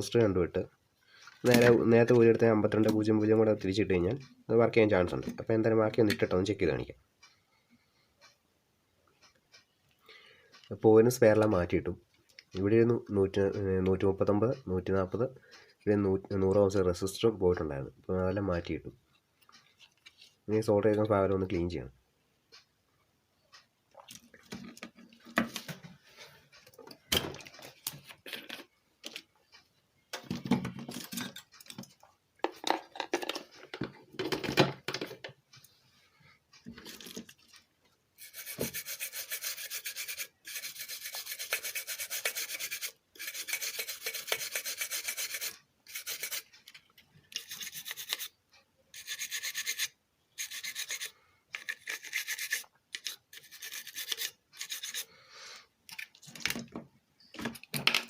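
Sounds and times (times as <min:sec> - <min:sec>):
scrubbing a circuit board: 0:38.2 - 0:55.1.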